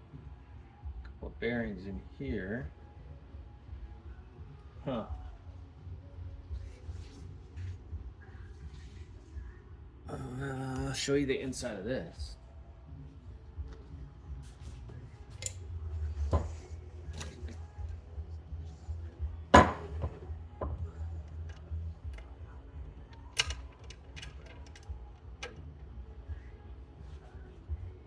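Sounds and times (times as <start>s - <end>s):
low steady hum: 0.0s - 28.0s
metal engine parts clinking: 19.6s - 20.2s.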